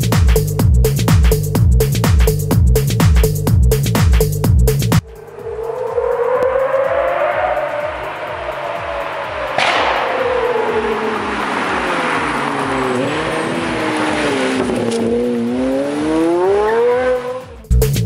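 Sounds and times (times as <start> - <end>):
low even beat: 3.3 - 14.3
sports car engine revving: 5.0 - 17.7.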